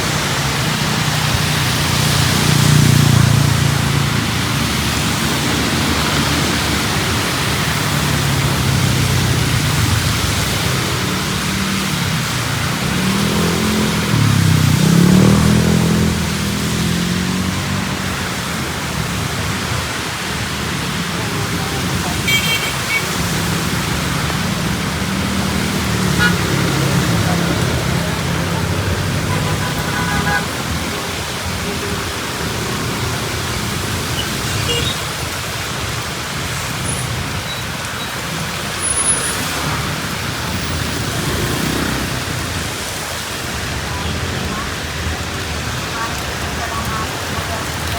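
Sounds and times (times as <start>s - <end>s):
hiss of rain and traffic: 0.0s - 47.9s
vehicle engine passing by: 1.4s - 18.6s, 23.0s - 34.7s.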